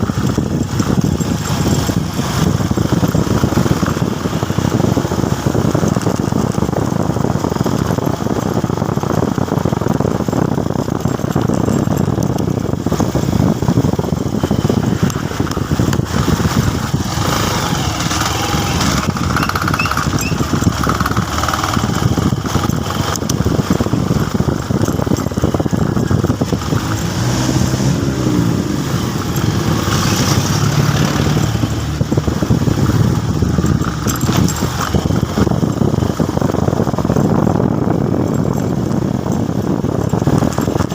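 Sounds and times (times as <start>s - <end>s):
motorcycle engine running: 0.0s - 40.9s
loud rushing noise: 25.4s - 35.4s.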